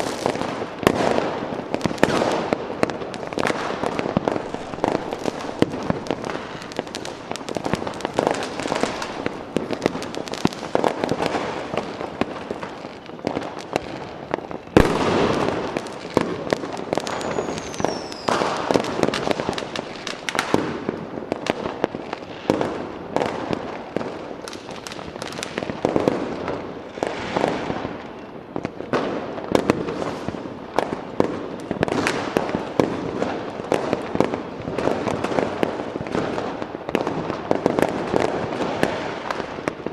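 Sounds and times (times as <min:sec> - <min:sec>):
falling firework whistle: 0:00.0 - 0:20.8
fireworks crackling and banging: 0:00.0 - 0:39.9.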